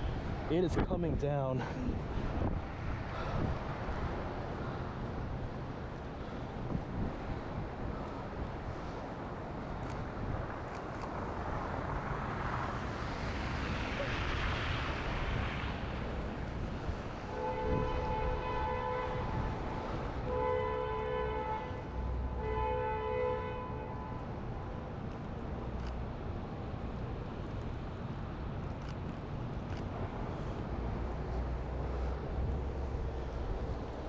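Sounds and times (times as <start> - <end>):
wind noise on microphone: 0.0 - 21.4
two-tone vehicle horn honking: 17.3 - 19.5, 20.2 - 24.2.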